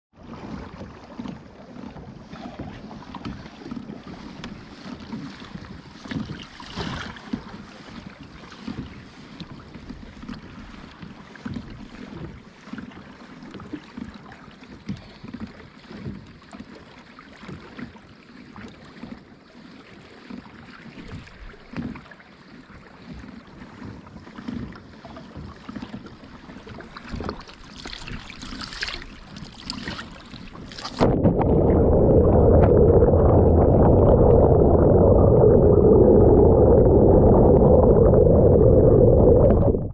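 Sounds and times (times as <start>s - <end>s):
water lapping around a kayak: 0.1s - 39.9s
wind on microphone: 29.9s - 39.9s
muffled rumble: 30.9s - 39.9s.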